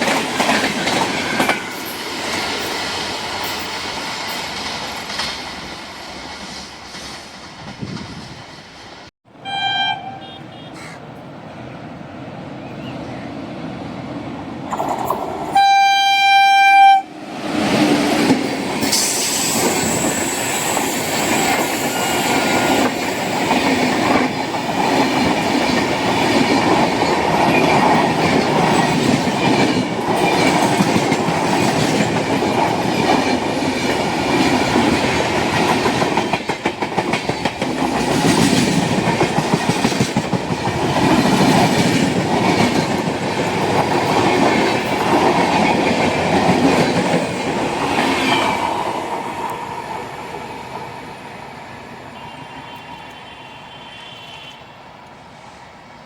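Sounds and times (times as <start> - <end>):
clickety-clack over rail joints: 0.0 - 9.1, 14.7 - 15.6, 17.6 - 20.2, 21.0 - 49.7
train wheels on rails: 0.0 - 9.1, 10.8 - 56.0
train horn: 9.3 - 10.9, 15.5 - 17.2, 52.1 - 54.8.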